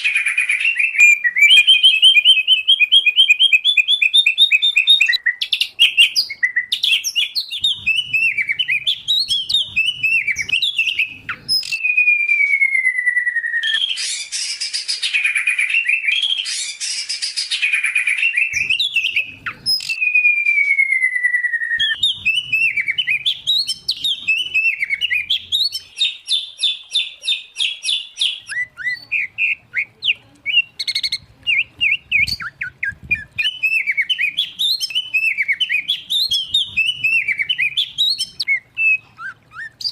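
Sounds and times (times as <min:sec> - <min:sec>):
songbirds singing whistled phrases: 0:00.0 - 0:39.9
long falling whistles: 0:11.8 - 0:14.3, 0:20.0 - 0:22.9.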